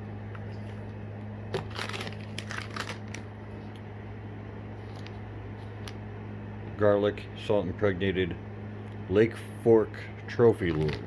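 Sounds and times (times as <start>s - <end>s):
low steady hum: 0.0s - 11.0s
packaging crinkling: 1.5s - 3.6s, 4.8s - 6.0s.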